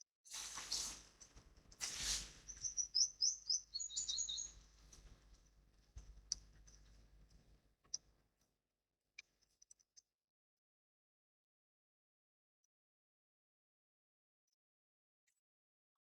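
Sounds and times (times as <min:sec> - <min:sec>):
small bird chirping: 0:01.8 - 0:05.0.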